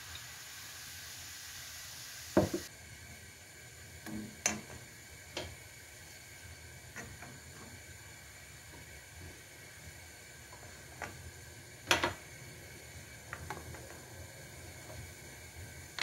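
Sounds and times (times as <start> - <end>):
low hiss: 0.0 - 16.0.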